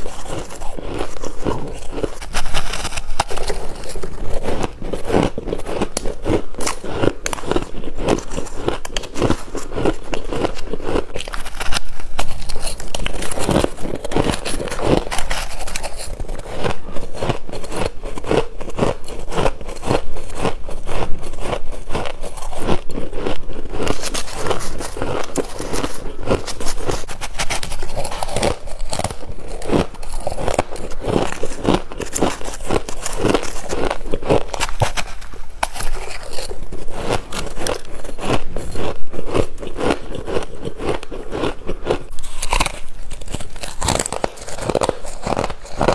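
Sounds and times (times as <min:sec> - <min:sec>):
frost being chewed crunchily: 0:00.0 - 0:45.9.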